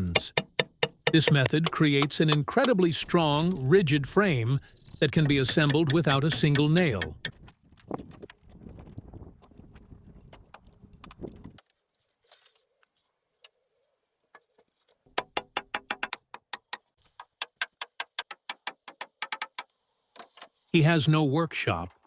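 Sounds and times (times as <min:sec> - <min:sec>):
hand tools tapping on timber: 0:00.0 - 0:04.2, 0:05.0 - 0:07.4, 0:15.2 - 0:19.7.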